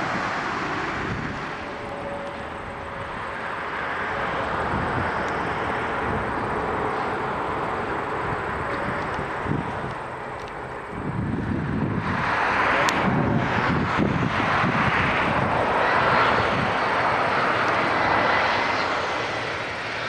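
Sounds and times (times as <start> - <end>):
turboprop engines drone: 0.0 - 20.0.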